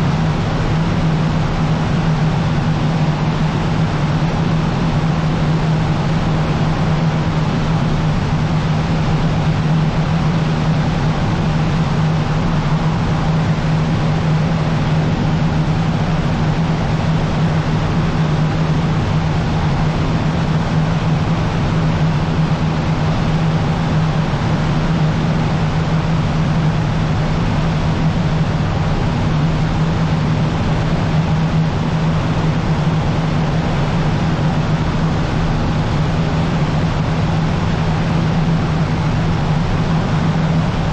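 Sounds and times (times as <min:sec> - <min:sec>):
small plane engine droning: 0:00.0 - 0:40.9.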